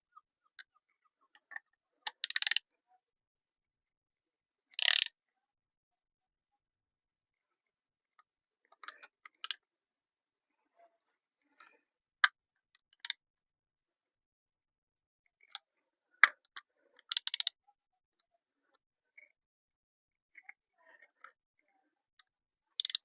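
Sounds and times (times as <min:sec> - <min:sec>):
ratcheting clicks: 0:02.2 - 0:02.6, 0:04.8 - 0:05.1, 0:17.1 - 0:17.5, 0:22.8 - 0:23.0.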